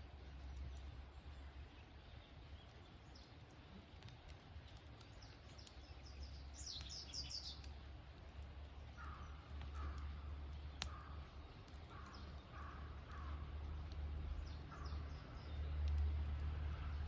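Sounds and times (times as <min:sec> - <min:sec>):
campfire crackling: 0:00.0 - 0:17.0
birds calling: 0:04.7 - 0:07.8, 0:08.7 - 0:15.8.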